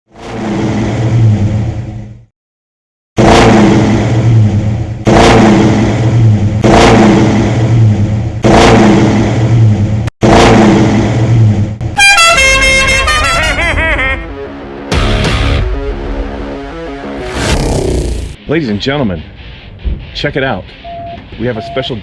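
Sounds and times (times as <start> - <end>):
car engine revving: 3.2 - 12.0.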